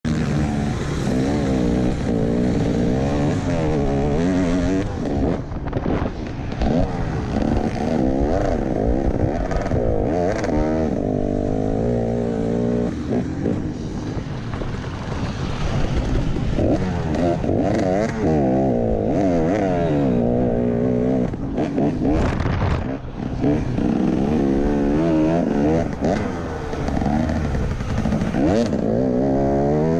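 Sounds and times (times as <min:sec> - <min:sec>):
motocross bike engine revving: 0:00.0 - 0:29.9.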